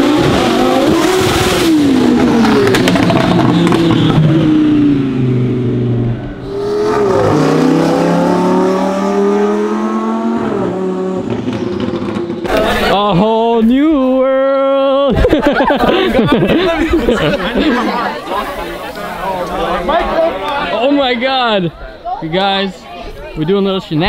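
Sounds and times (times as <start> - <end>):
sports car accelerating hard: 0.0 - 12.5
exhaust pops: 0.1 - 4.6.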